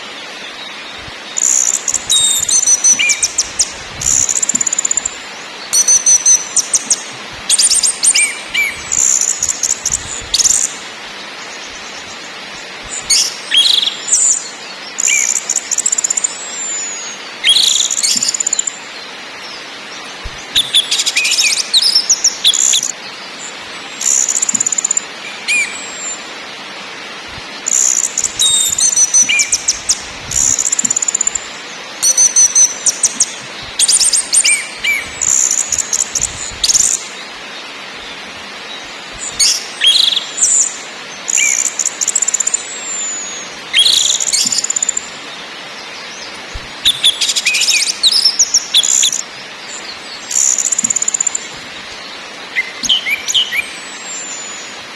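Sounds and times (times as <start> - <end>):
steady hiss: 0.0 - 54.9
thrush chattering calls: 1.3 - 5.2, 5.8 - 10.9, 27.4 - 45.0.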